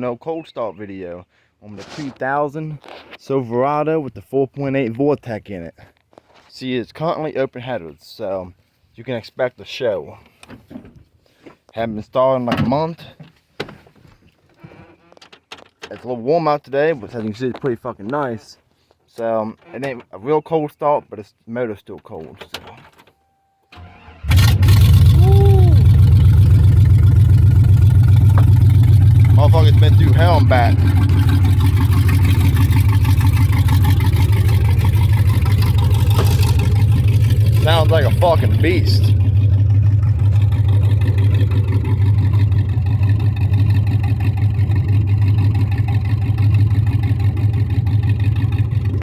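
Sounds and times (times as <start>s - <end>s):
engine cranking: 23.8s - 49.0s
engine idling loudly: 24.3s - 49.0s.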